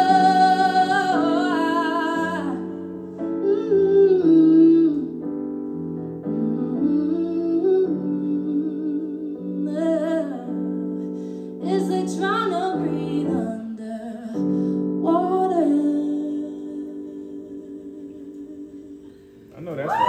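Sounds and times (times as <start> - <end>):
woman singing: 0.0 - 5.2, 6.3 - 19.3
piano chords: 0.0 - 19.9.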